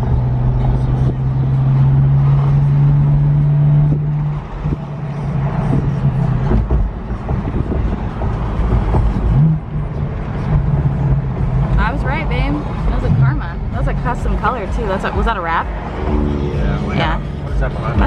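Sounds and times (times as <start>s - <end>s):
car engine drone: 0.0s - 18.0s
tyre and road noise: 0.0s - 18.0s.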